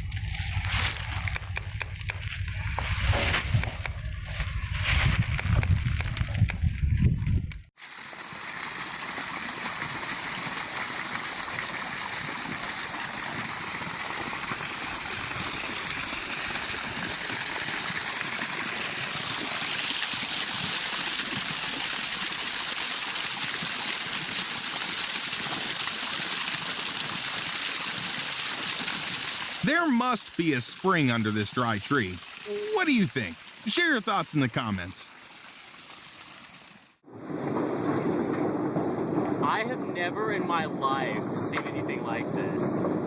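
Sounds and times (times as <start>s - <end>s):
water rushing: 28.7s - 36.8s.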